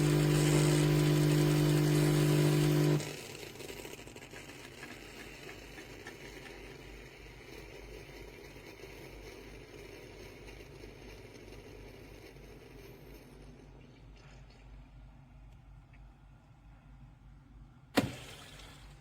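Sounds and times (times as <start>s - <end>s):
espresso machine humming and hissing: 0.0s - 4.2s.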